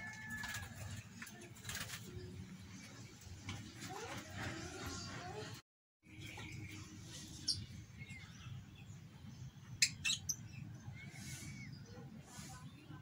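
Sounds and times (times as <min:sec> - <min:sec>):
small birds chirping: 0:06.0 - 0:13.0.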